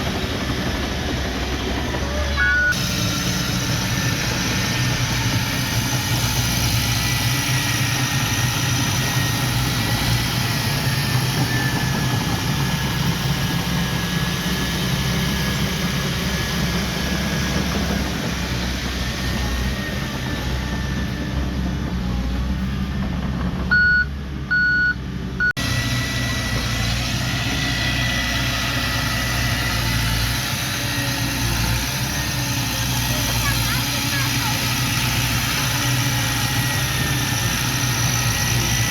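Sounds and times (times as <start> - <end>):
heavy diesel machinery running: 0.0 - 38.9
reversing alarm beeps: 2.4 - 2.8, 23.7 - 25.6.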